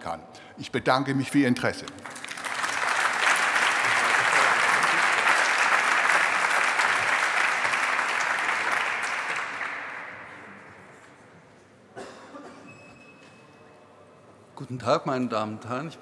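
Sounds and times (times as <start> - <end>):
audience applauding: 2.0 - 10.8.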